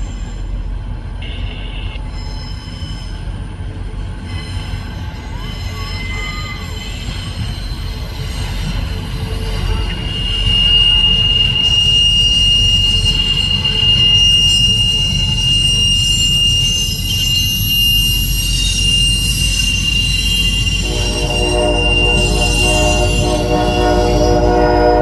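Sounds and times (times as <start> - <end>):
train low rumble: 0.0 - 25.0
train wheels squealing on rail: 0.0 - 25.0
train horn chord: 20.8 - 25.0.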